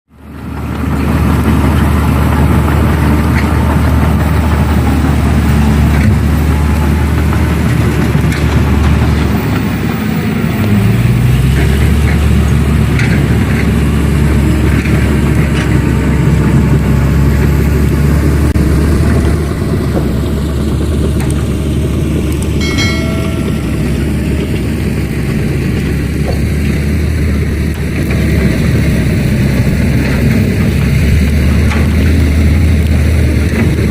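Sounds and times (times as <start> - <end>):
heavy diesel engine revving: 0.2 - 33.9
brief higher tone: 22.6 - 24.8.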